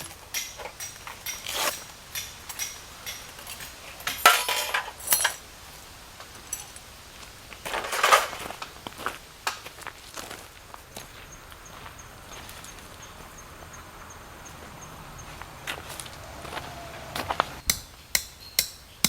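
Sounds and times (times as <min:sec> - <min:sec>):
metal clinks and rattles: 0:00.0 - 0:05.4
rustling and scraping: 0:00.0 - 0:05.5, 0:06.2 - 0:11.2.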